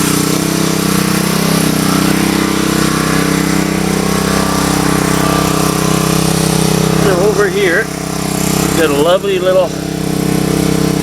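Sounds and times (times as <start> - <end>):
small gasoline engine running: 0.0 - 11.0.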